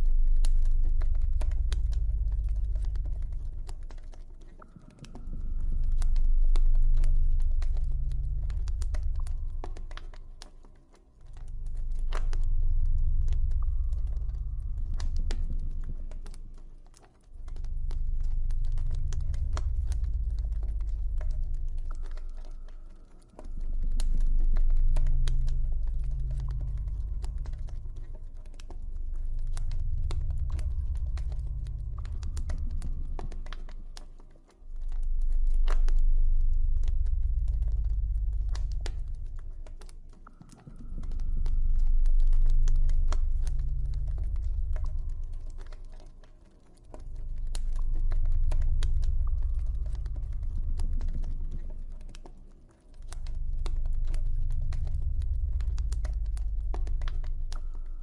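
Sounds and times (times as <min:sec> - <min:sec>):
deep low drone: 0:00.0 - 0:58.0
campfire crackling and popping: 0:34.8 - 0:58.0.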